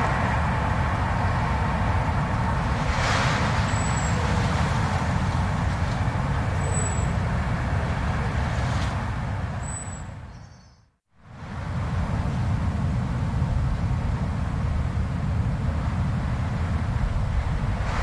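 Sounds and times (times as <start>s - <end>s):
blizzard wind rumbling: 0.0s - 9.6s, 14.7s - 18.0s.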